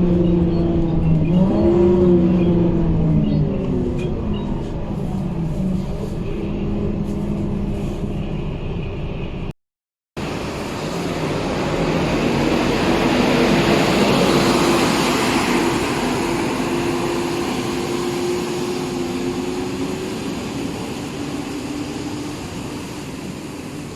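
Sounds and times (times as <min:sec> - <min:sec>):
bus diesel engine drone: 0:00.0 - 0:09.6, 0:10.2 - 0:23.9.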